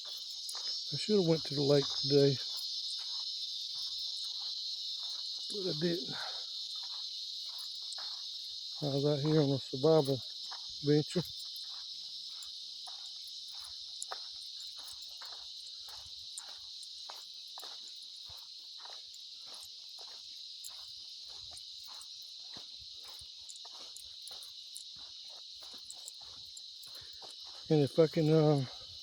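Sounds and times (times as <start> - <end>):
cicadas chorus: 0.0 - 29.0
footsteps walking: 0.0 - 29.0.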